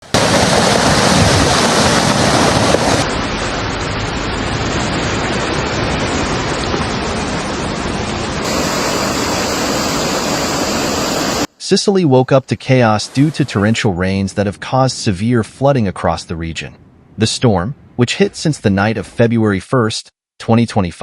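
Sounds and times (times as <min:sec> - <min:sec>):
floodwater rushing: 0:00.0 - 0:11.5.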